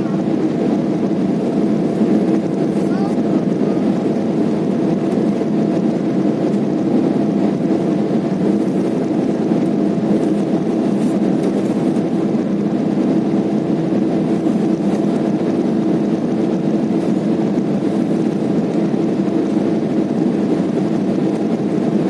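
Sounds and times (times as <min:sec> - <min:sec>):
airliner cabin engine hum: 0:00.0 - 0:22.0.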